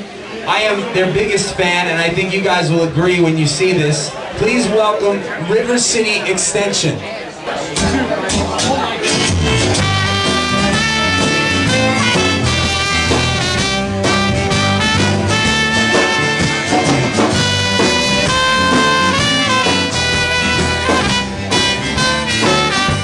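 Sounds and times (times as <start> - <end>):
drum kit beat: 7.7 - 23.0
band playing with horns: 9.0 - 23.0.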